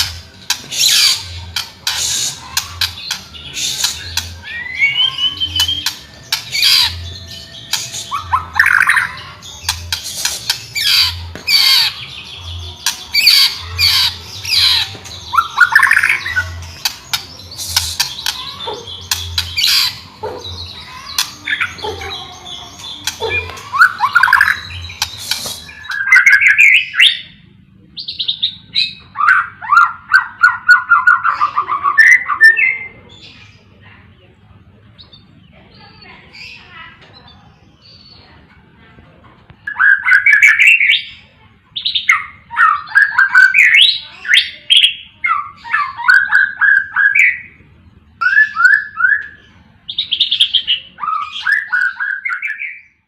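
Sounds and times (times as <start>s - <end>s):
songbird singing: 0.0s - 38.7s, 39.4s - 53.0s.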